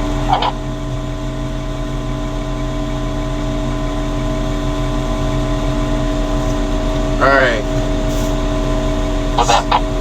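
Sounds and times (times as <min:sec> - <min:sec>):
crane engine humming: 0:00.0 - 0:10.0
steady whining tones: 0:04.5 - 0:10.0.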